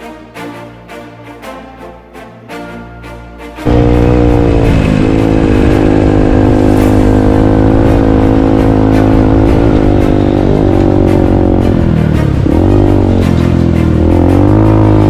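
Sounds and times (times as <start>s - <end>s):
dirt bike engine running: 3.7s - 15.0s.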